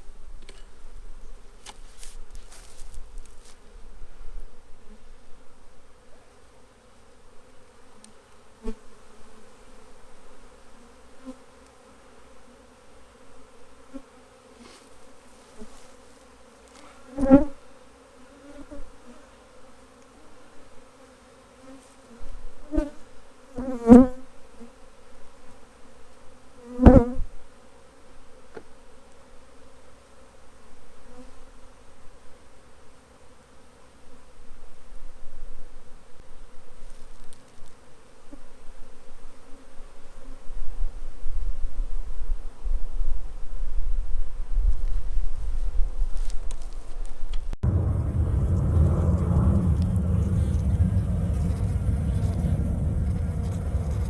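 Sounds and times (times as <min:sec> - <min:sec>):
bees buzzing close by: 0:03.7 - 0:34.6
bee swarm humming: 0:47.6 - 0:54.0.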